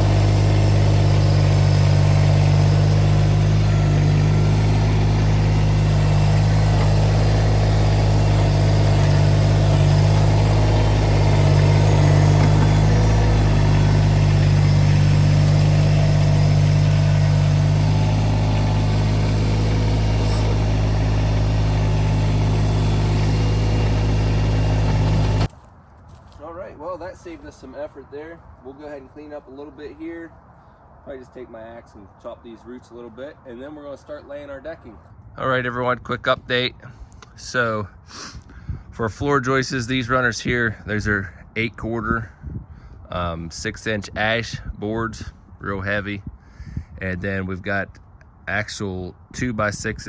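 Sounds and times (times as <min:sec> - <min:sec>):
small machine engine running: 0:00.0 - 0:25.5.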